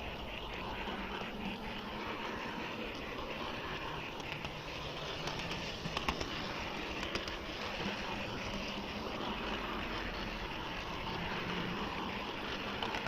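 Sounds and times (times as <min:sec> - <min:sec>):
model train rolling rumble: 0:00.0 - 0:13.0
wheels clicking on rail joints: 0:00.0 - 0:13.0.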